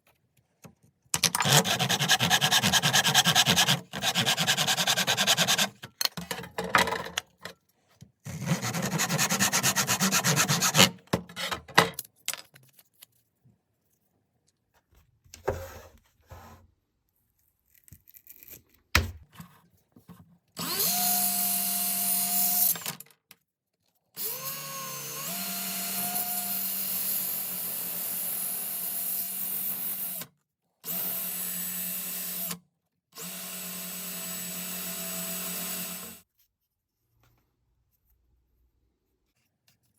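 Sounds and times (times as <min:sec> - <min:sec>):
small power tool whining: 0:20.6 - 0:23.0, 0:24.2 - 0:32.6, 0:33.2 - 0:36.2.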